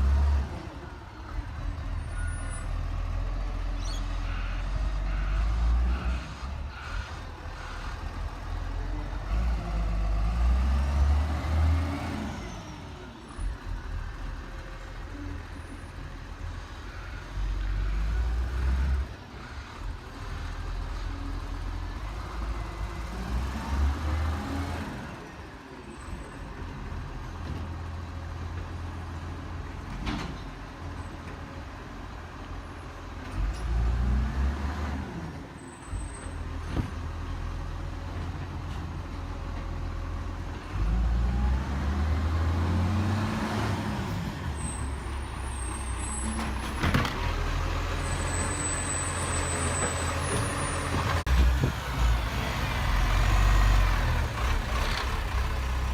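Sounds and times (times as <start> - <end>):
garbage truck diesel engine revving: 0.0 - 15.6, 16.2 - 25.6, 36.4 - 55.9.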